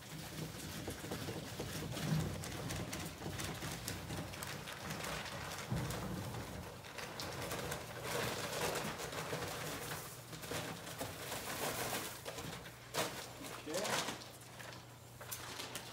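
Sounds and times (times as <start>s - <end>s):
powder pouring from paper bag: 0.0s - 15.9s.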